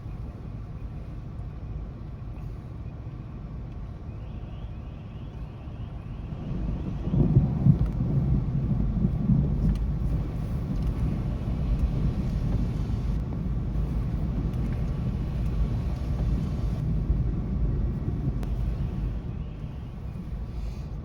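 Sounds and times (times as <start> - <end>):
thunder rumbling: 6.2 - 20.6.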